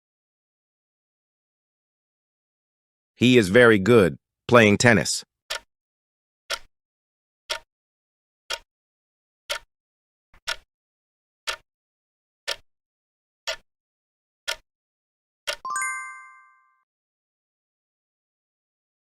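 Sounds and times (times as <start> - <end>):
timer ticking: 5.5 - 5.7, 6.5 - 6.7, 7.5 - 7.7, 8.5 - 8.7, 9.5 - 9.7, 10.4 - 10.7, 15.5 - 16.6
bright multi-pitch chime: 15.7 - 16.8.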